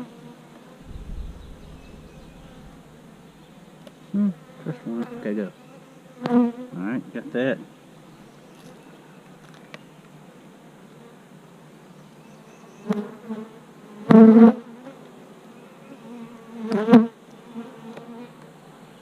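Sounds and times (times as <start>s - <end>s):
bees buzzing: 0.8s - 3.8s.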